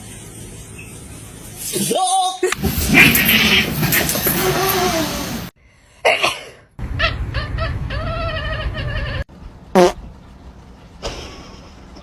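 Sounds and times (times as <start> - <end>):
pet animal wavering calls: 7.0 - 9.2.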